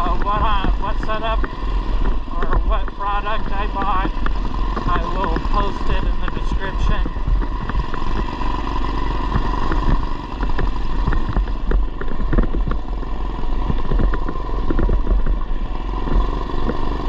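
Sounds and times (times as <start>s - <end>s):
mini bike engine running: 0.0s - 17.0s
short rattles and knocks: 9.2s - 17.0s.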